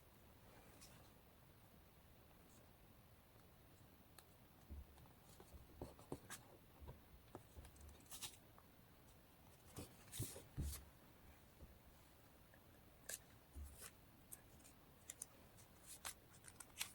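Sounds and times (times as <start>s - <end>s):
paper crinkling and rustling: 13.1s - 16.9s.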